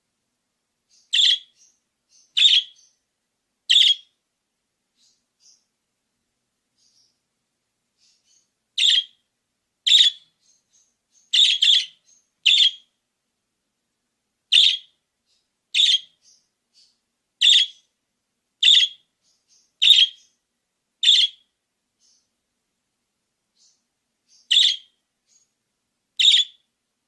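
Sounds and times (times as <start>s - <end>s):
budgerigar chirping: 0.9s - 3.0s, 3.7s - 4.2s, 8.0s - 9.2s, 9.9s - 12.9s, 14.5s - 15.0s, 15.7s - 17.9s, 18.6s - 20.4s, 21.0s - 22.3s, 23.6s - 25.5s, 26.2s - 26.6s.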